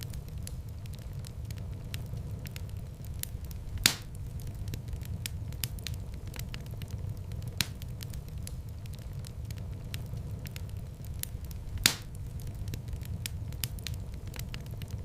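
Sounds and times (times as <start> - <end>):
loud fire pops: 0.0 - 15.0
wood fire crackling: 0.0 - 15.0.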